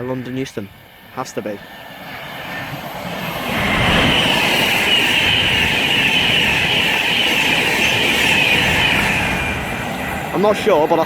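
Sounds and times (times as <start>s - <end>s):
electric train passing at speed: 0.0s - 11.0s.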